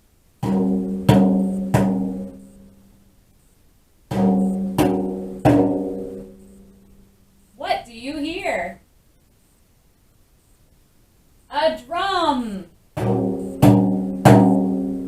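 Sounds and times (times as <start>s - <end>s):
drum strokes ringing: 0.4s - 2.5s, 4.1s - 6.5s, 13.0s - 14.9s.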